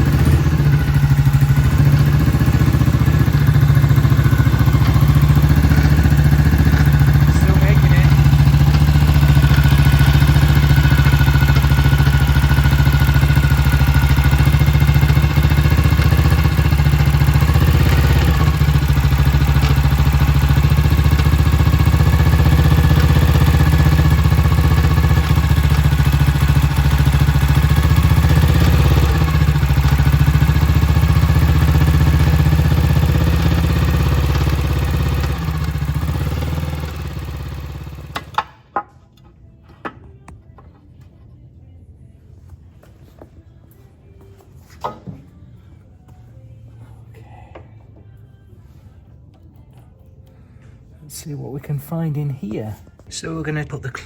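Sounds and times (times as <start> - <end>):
motorcycle engine running: 0.0 - 38.7.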